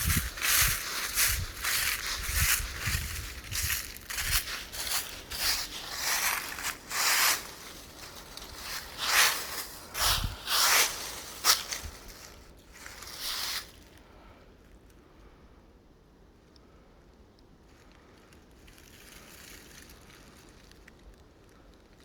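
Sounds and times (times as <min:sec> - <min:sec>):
footsteps crunching dry leaves: 0:00.0 - 0:14.0, 0:18.7 - 0:20.8.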